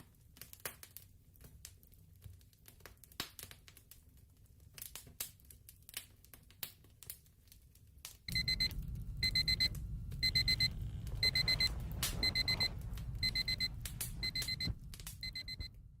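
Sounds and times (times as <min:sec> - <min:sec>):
fireplace crackling: 0:00.0 - 0:16.0
alarm clock beeping: 0:08.3 - 0:15.7
low rumble: 0:08.3 - 0:16.0.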